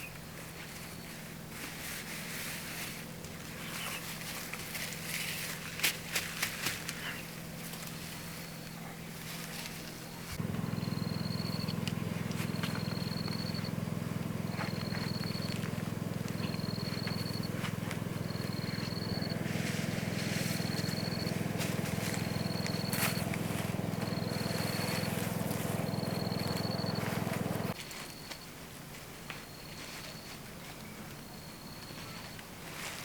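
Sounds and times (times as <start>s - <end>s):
low motor hum: 9.9s - 27.8s.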